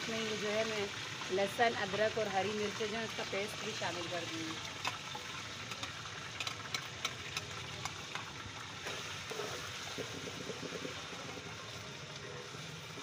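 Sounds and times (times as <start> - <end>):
food sizzling in a pot: 0.0 - 13.0
crackles and pops in hot oil: 2.8 - 13.0.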